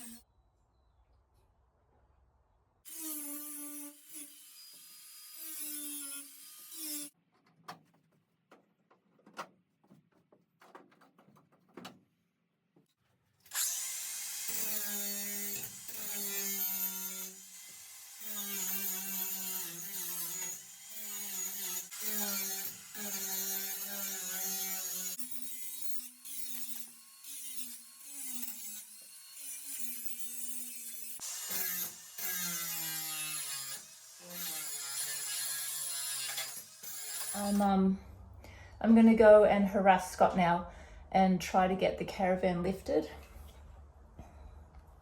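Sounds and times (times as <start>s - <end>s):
power drill running: 13.5s - 19.1s.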